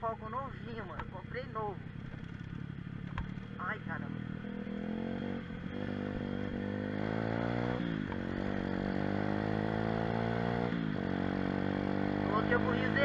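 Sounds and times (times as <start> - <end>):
pit bike engine revving: 3.4 - 13.0.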